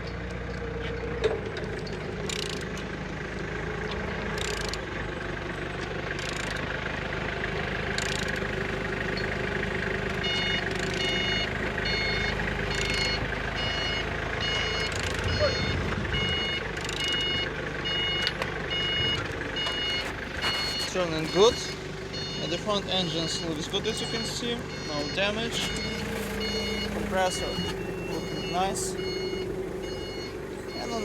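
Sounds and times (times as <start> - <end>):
vehicle engine idling: 0.0 - 31.0
reversing alarm beeping: 9.2 - 31.0.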